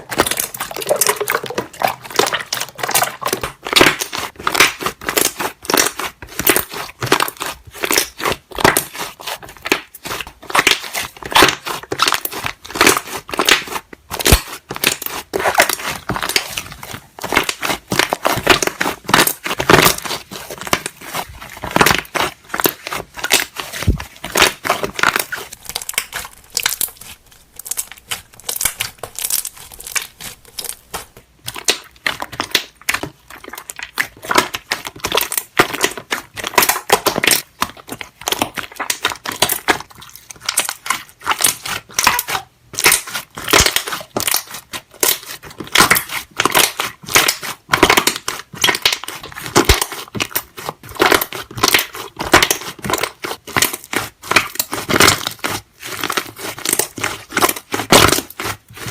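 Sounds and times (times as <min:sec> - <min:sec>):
slime air bubbles popping: 0:00.1 - 0:04.8.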